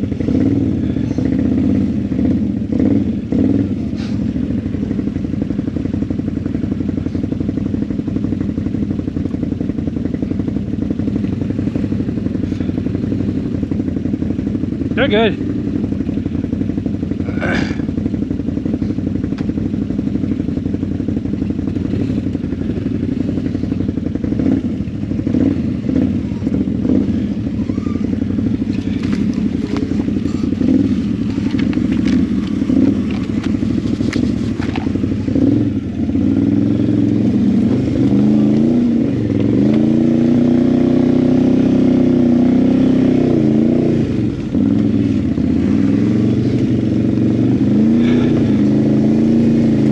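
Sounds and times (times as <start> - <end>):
atv engine running and revving: 0.0 - 49.9
knocks and clatter on rough ground: 18.8 - 19.8, 28.6 - 35.6.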